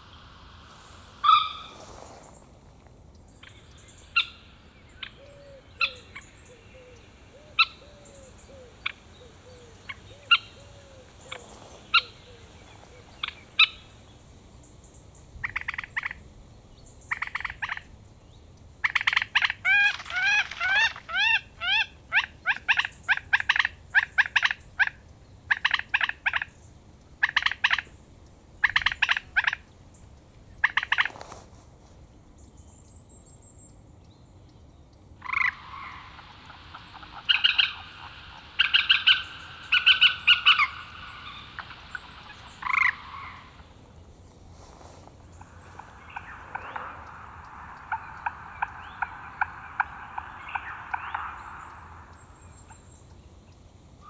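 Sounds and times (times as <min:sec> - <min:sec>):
birds calling: 0:00.0 - 0:54.0
bird trills: 0:01.2 - 0:01.8, 0:03.4 - 0:14.0, 0:18.8 - 0:31.2, 0:35.2 - 0:53.7.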